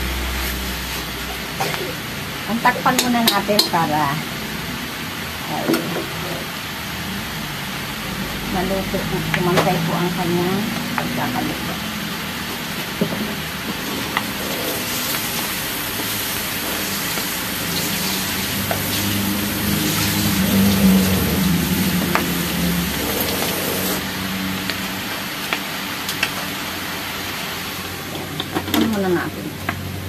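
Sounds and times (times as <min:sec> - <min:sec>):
meat sizzling in oil: 0:07.6 - 0:28.4.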